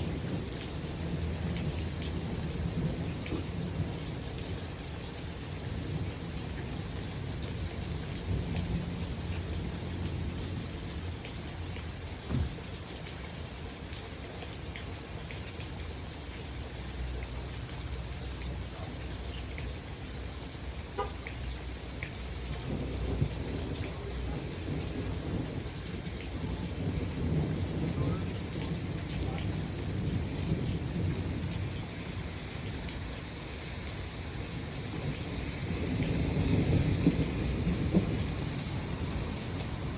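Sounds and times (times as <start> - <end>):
low rolling thunder: 0.0 - 11.2, 22.2 - 39.9
steady rain falling: 0.0 - 39.9
water drips: 13.6 - 22.7.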